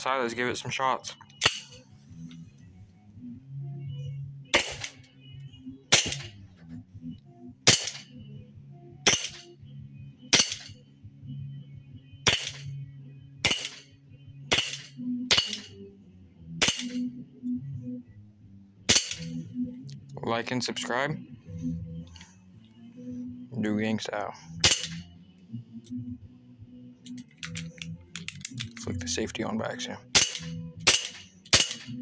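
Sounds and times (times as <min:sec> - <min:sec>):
air pistol shots: 0:01.4 - 0:01.8, 0:04.6 - 0:05.1, 0:05.9 - 0:06.5, 0:07.7 - 0:08.2, 0:09.1 - 0:09.5, 0:10.3 - 0:10.8, 0:12.3 - 0:12.8, 0:13.4 - 0:15.8, 0:16.6 - 0:17.1, 0:18.9 - 0:19.5, 0:24.6 - 0:25.2, 0:30.1 - 0:32.0.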